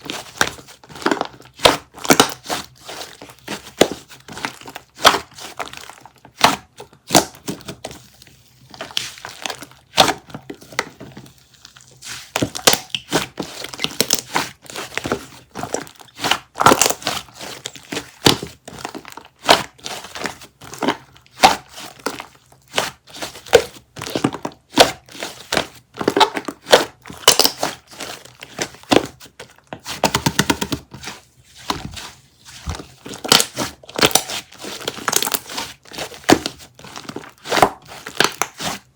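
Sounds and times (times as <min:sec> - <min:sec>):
crinkling and crumpling handling: 0:00.0 - 0:38.9.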